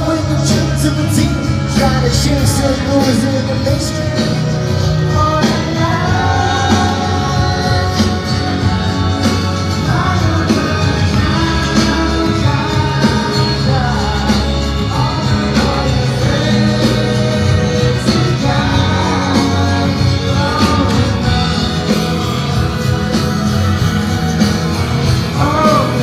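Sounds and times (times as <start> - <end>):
live rock band playing: 0.0 - 26.0
person singing: 0.0 - 26.0.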